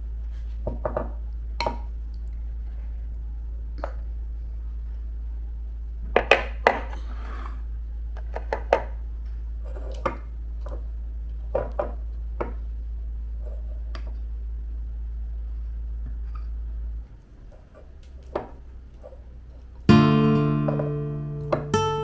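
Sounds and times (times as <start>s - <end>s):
steady low hum: 9.0s - 22.0s.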